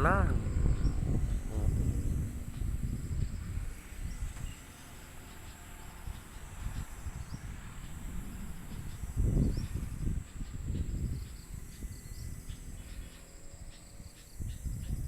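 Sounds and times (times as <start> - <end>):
low rumble: 0.0 - 12.4
insects chirring: 0.0 - 15.0.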